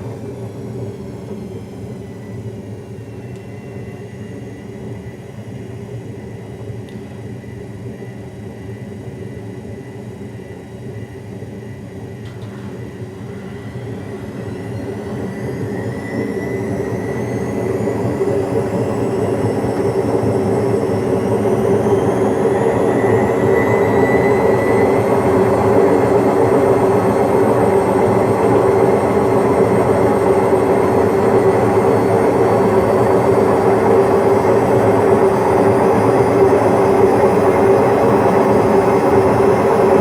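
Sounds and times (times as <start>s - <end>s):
washing machine motor whine: 0.0s - 12.0s, 12.8s - 40.0s.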